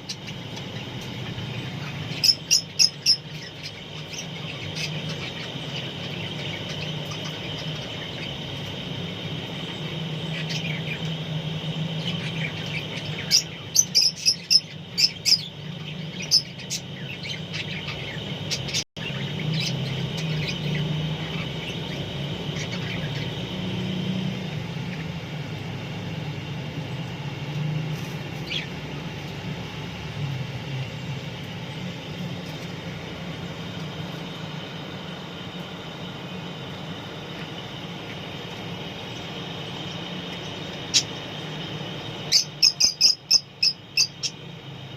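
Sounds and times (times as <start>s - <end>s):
parrots chirping: 0.0s - 25.1s, 28.2s - 29.0s, 39.0s - 44.5s
steady high drone: 0.0s - 44.9s.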